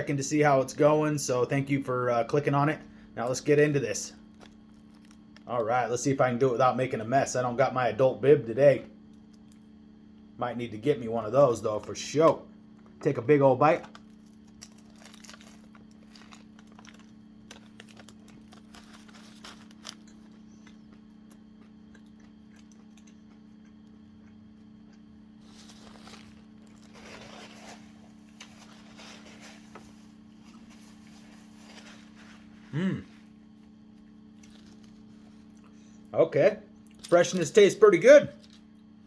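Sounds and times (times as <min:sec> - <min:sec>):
person chewing food: 0:14.0 - 0:26.9.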